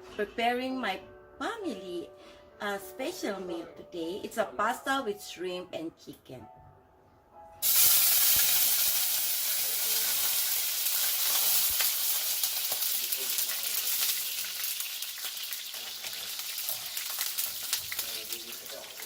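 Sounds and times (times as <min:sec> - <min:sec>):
food sizzling in hot oil: 0:07.6 - 0:19.0.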